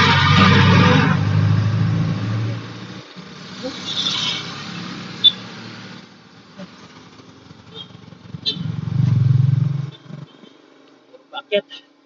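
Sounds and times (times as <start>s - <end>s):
road ambience: 0.0s - 12.0s
vehicle engine running: 6.0s - 11.8s.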